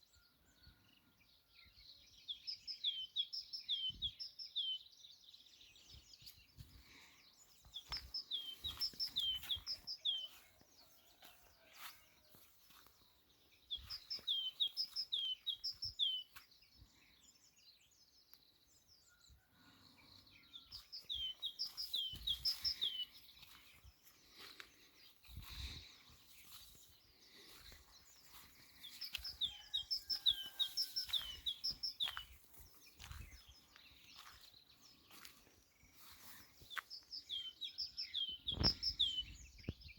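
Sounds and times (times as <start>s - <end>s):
songbird singing: 0.0s - 39.9s
faint bird chirps: 13.7s - 39.9s.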